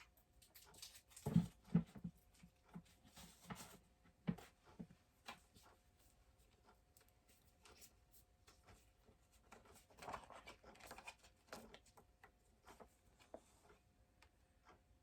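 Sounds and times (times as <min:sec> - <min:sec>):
small plastic clicks and rustles: 0:06.4 - 0:14.8.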